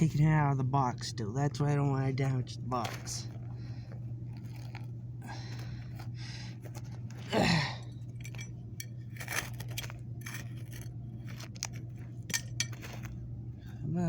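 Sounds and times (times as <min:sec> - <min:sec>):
steady low hum: 0:00.0 - 0:14.0
scraping of digging in dirt: 0:02.4 - 0:13.3.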